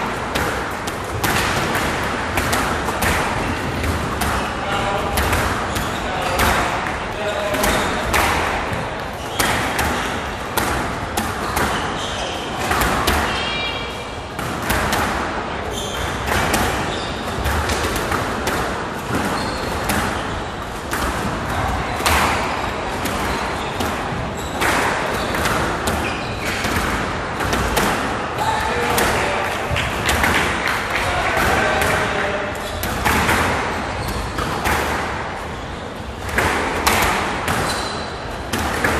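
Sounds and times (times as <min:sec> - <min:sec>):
squash ball impacts: 0:00.0 - 0:38.9
shoe squeaks on court floor: 0:05.6 - 0:08.0, 0:11.3 - 0:13.9, 0:15.6 - 0:17.6, 0:19.1 - 0:20.6, 0:22.4 - 0:26.7, 0:33.6 - 0:34.6, 0:37.5 - 0:38.4.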